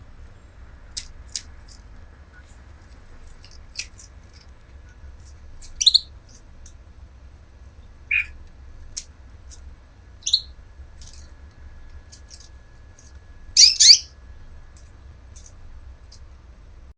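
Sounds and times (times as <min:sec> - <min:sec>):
bird chirps and squawks: 0:05.8 - 0:06.1, 0:08.1 - 0:08.4, 0:10.2 - 0:10.5, 0:13.6 - 0:14.1
faint high chirps: 0:08.1 - 0:08.4, 0:10.2 - 0:10.6, 0:13.5 - 0:14.2.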